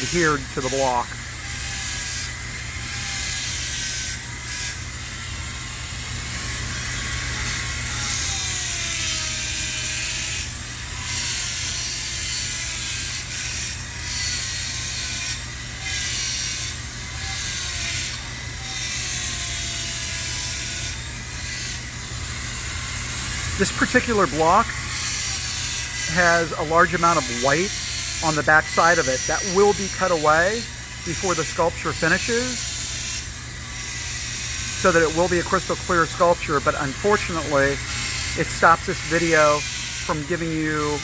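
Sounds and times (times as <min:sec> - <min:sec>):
tool scraping ice: 0:00.0 - 0:04.7, 0:22.6 - 0:41.0
steady low hum: 0:21.7 - 0:41.0.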